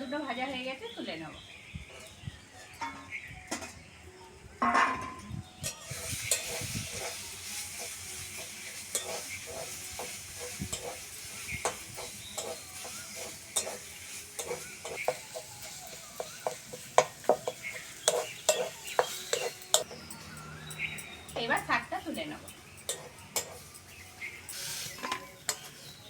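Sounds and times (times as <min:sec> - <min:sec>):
light sizzle: 0:05.5 - 0:26.0
spatula scraping a pan: 0:05.6 - 0:20.0, 0:22.9 - 0:26.0.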